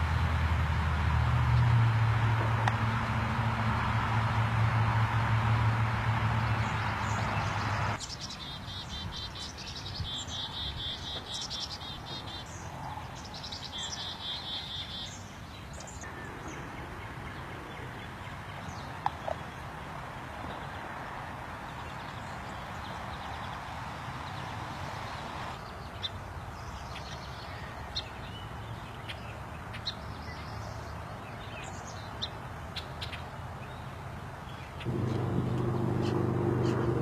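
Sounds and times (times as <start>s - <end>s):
birds trilling and chirping: 34.6s - 37.0s.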